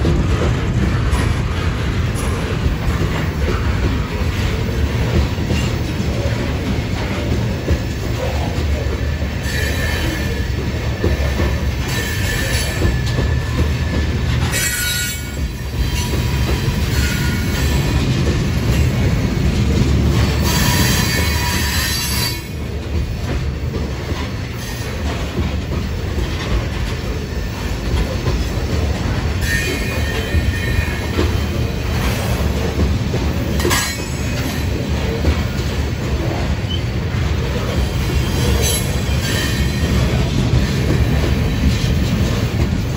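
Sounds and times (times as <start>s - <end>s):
freight train wheels rumbling: 0.0s - 42.9s
high-pitched wheel squeals: 14.5s - 16.1s.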